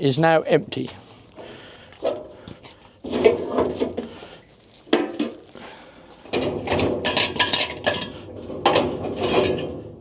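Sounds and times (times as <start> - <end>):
metal can and jar clinking: 4.9 - 5.5, 6.3 - 9.7.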